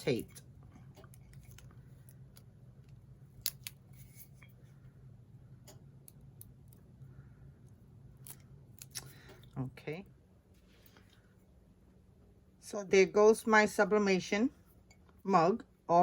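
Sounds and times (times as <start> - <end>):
steady low hum: 0.0 - 16.0
small sharp clicks and snips: 1.0 - 3.8.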